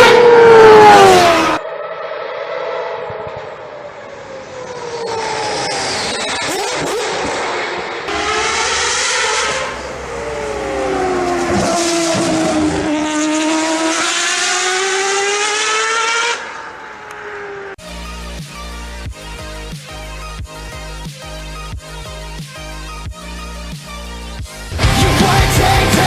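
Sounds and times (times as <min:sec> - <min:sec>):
race car engine at high revs: 0:00.0 - 0:17.8
electronic music: 0:17.8 - 0:26.0.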